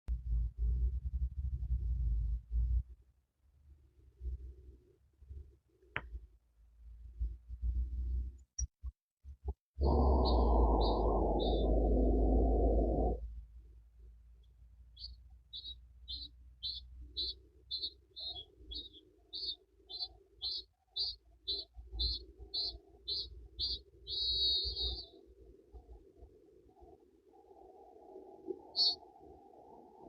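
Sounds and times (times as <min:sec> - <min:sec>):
low steady rumble: 0:00.1 - 0:05.6, 0:06.2 - 0:08.4, 0:09.8 - 0:17.7
bird calling high notes: 0:09.8 - 0:13.1.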